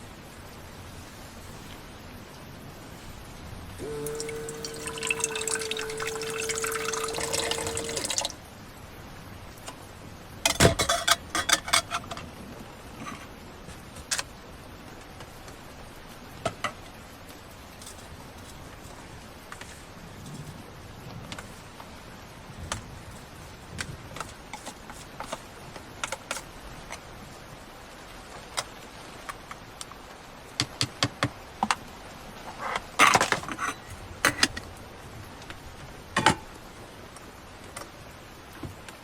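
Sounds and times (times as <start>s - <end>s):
heavy rain hissing: 0.0s - 10.4s.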